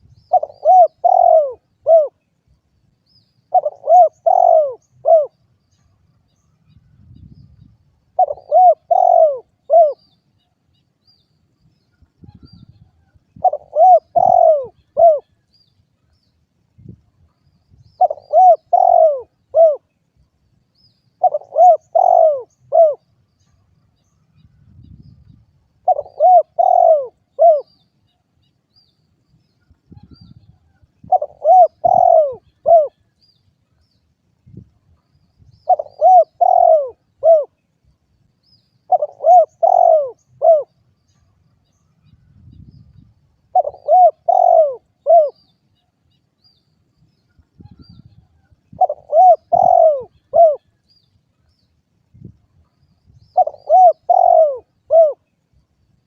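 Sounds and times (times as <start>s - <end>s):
dove cooing: 0.0s - 2.2s, 3.5s - 5.4s, 8.1s - 10.1s, 13.4s - 15.4s, 18.0s - 19.9s, 21.2s - 23.1s, 25.8s - 27.8s, 30.0s - 33.0s, 35.6s - 37.6s, 38.9s - 40.8s, 43.5s - 45.5s, 47.6s - 50.8s, 53.3s - 55.3s.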